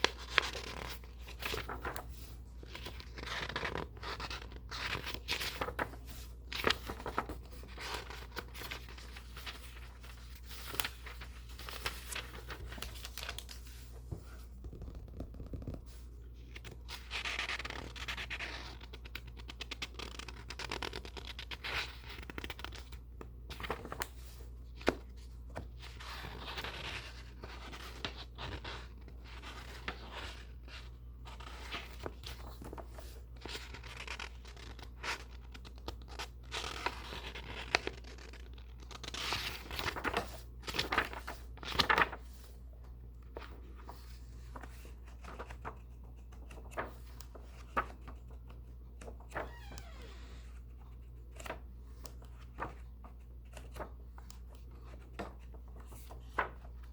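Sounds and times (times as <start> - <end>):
paper pages rustling and turning: 0.0 - 56.9
scratching on paper: 14.6 - 16.0.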